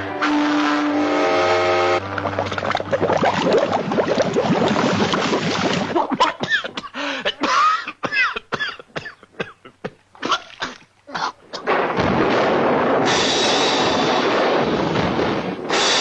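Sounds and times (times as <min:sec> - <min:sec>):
cough-like noises: 0:06.0 - 0:11.7
dense noise: 0:10.2 - 0:16.0.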